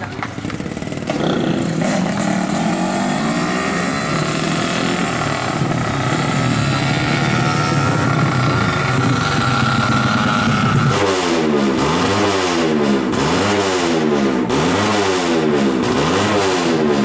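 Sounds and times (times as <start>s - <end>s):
two-stroke motorcycle engine revving: 0.0s - 17.0s.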